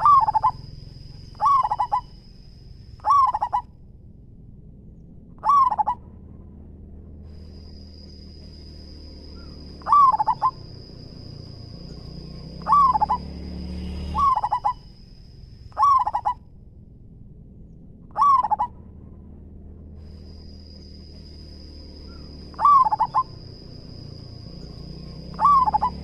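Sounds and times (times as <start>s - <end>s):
dove cooing: 0.0s - 2.3s, 3.0s - 3.7s, 5.4s - 6.0s, 9.3s - 13.3s, 14.2s - 15.0s, 15.7s - 16.4s, 18.1s - 18.8s, 22.1s - 24.3s, 25.2s - 26.0s.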